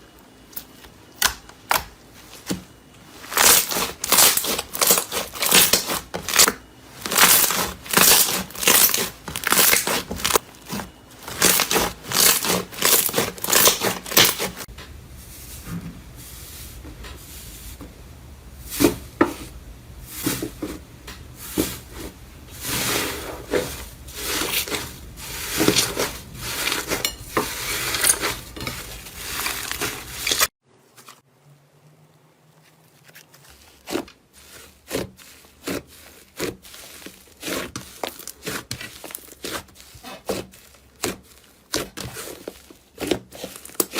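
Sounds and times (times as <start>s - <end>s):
crunchy material being crushed: 0.6s - 14.7s, 22.6s - 31.2s, 32.6s - 43.9s.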